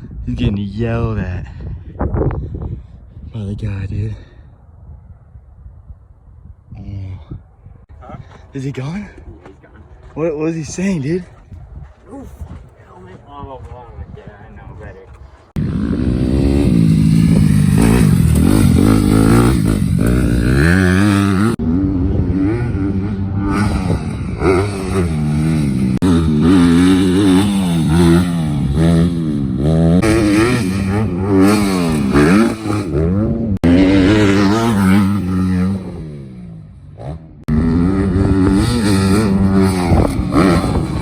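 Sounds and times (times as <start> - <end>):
dirt bike engine revving: 15.4 - 41.0.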